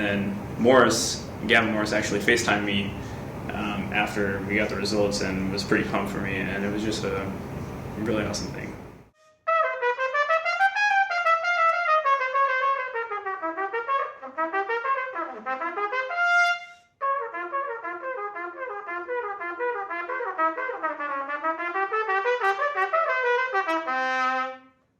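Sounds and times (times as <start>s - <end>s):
solo trumpet playing fast runs: 9.2s - 24.8s.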